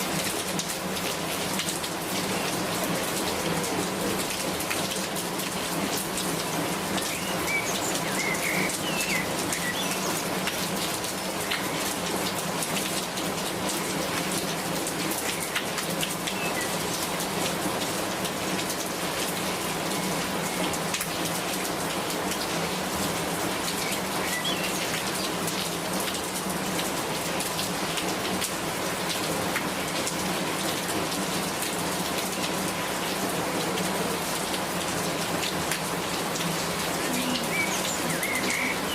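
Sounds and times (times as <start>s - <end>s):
rain drops ticking on hard surface: 0.0s - 38.9s
rain hiss: 0.0s - 38.9s.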